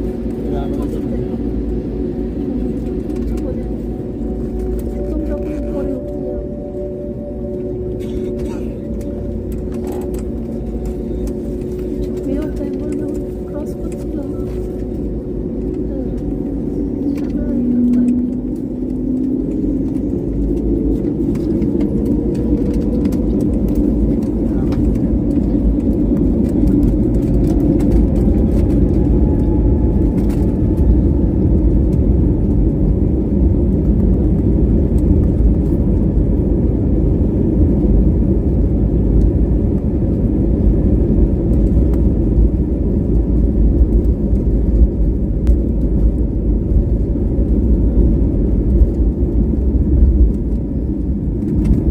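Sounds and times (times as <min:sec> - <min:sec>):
faint rising whine: 0:00.0 - 0:35.4
airliner engines rumbling: 0:00.0 - 0:51.9.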